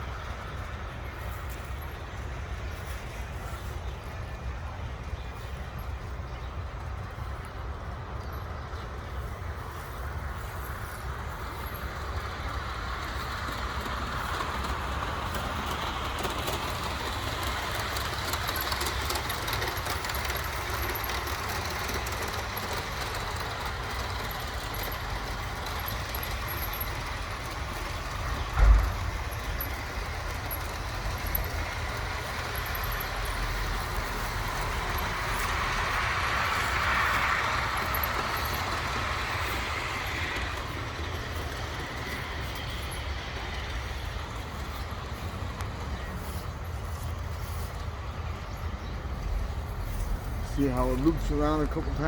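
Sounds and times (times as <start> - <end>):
model train rolling clatter: 0.0 - 52.0
sharp thump: 28.5 - 29.3.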